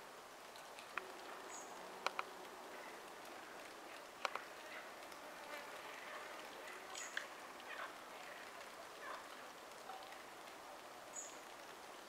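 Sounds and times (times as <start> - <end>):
outdoor background hiss: 0.0 - 12.0
small clicks: 0.4 - 5.6.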